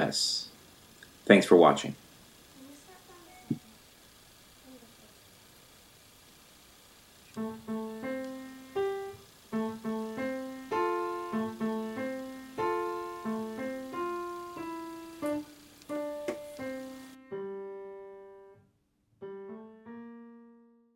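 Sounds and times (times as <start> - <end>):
piano melody: 7.4 - 18.6, 19.2 - 20.9.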